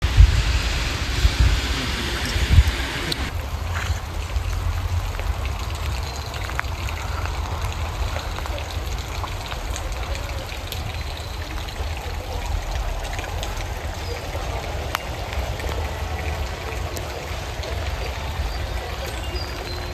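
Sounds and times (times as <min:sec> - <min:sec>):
constant low rumble: 0:00.0 - 0:11.0
steady rain: 0:00.0 - 0:19.9.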